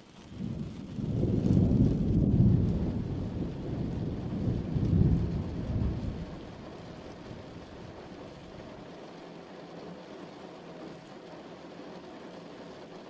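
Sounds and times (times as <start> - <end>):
steady rain: 0.0 - 13.0
thunder rumbling: 0.2 - 8.8.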